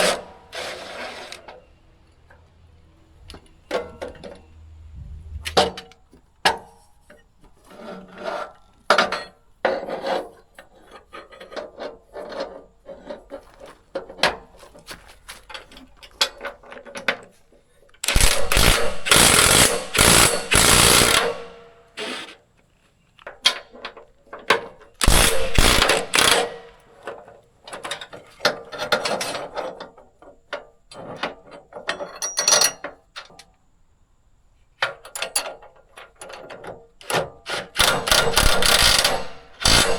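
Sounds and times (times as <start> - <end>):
tools clicking and clanking: 18.0 - 21.6, 23.4 - 29.2, 35.1 - 39.9
loud rasping: 18.1 - 21.6, 25.0 - 26.8, 37.9 - 39.9.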